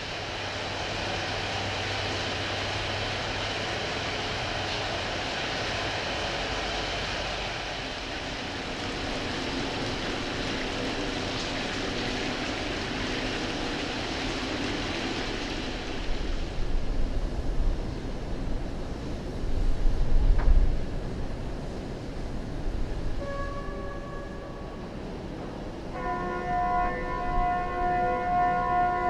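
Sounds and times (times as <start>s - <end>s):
steam locomotive roaring: 0.0s - 29.0s
wind buffeting microphone: 8.0s - 23.2s.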